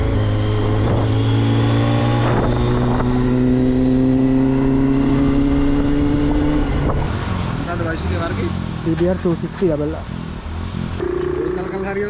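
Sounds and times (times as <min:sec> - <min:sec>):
motorcycle engine running: 0:07.1 - 0:12.0.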